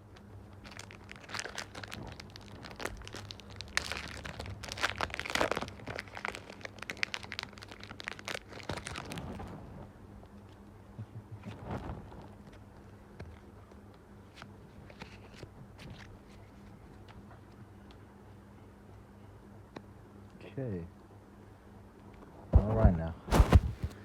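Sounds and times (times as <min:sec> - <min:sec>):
foil wrapper crinkling and tearing: 0:00.2 - 0:09.6.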